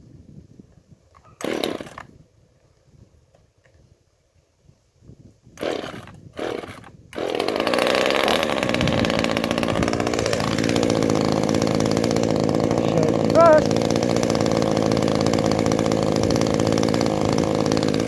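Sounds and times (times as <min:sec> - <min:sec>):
chainsaw engine running: 0:01.4 - 0:02.0, 0:05.6 - 0:18.0
starter cord rasps: 0:01.4 - 0:02.1, 0:05.6 - 0:18.0.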